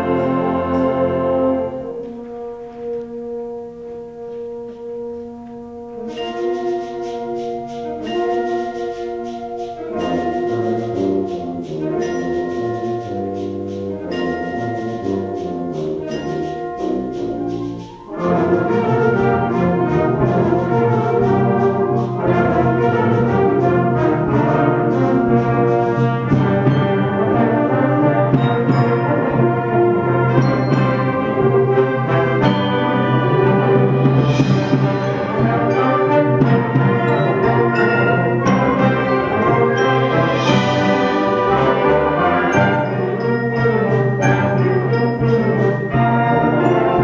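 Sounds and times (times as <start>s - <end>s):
concert band playing: 0.0s - 47.0s.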